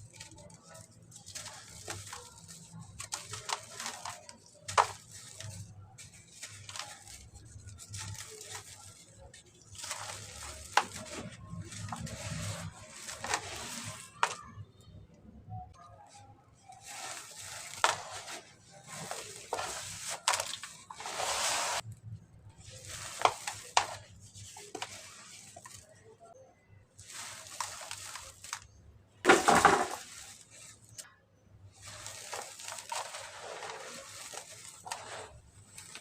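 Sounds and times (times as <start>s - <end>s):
cement crackling and fizzing in water: 31.7s - 36.0s.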